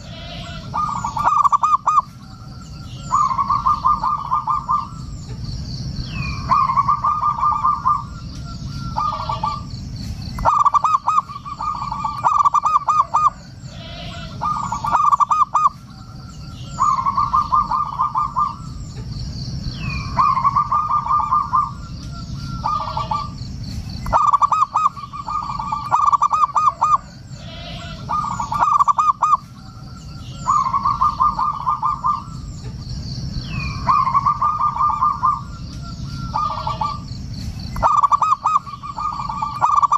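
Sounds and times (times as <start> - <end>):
dove cooing in rapid staccato: 0.0 - 2.1, 3.1 - 5.2, 6.4 - 8.2, 10.4 - 15.8, 16.8 - 18.7, 20.0 - 21.8, 24.1 - 29.4, 30.5 - 32.4, 33.8 - 35.6, 36.2 - 37.1, 37.8 - 39.9.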